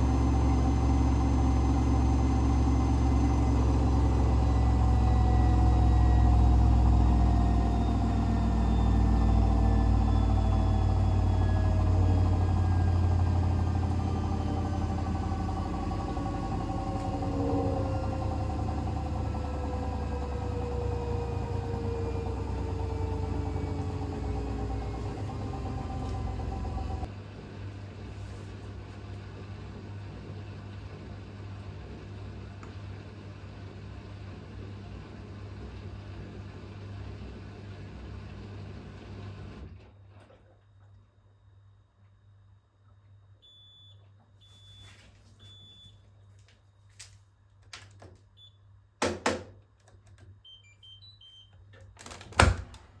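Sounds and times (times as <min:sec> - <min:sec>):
washing machine motor whining: 0:00.0 - 0:39.8.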